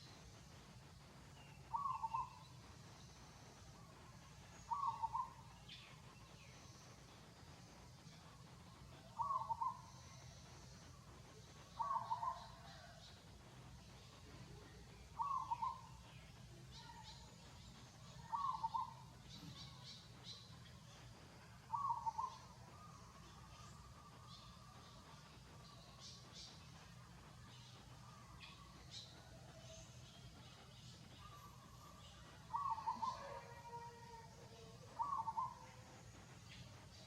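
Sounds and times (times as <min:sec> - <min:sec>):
steady low hum: 0:00.0 - 0:37.0
bird calling: 0:01.7 - 0:02.5, 0:04.6 - 0:05.5, 0:09.1 - 0:10.1, 0:11.8 - 0:12.9, 0:15.2 - 0:15.9, 0:18.2 - 0:19.9, 0:21.7 - 0:23.0, 0:32.5 - 0:33.8, 0:34.6 - 0:35.8.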